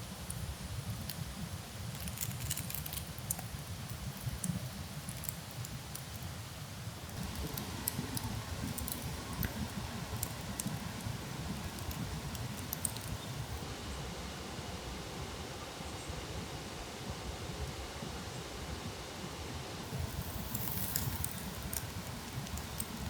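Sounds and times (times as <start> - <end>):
faint crackles and rustles: 0.0 - 13.7, 19.8 - 23.0
low fluctuating rumble: 19.9 - 23.0.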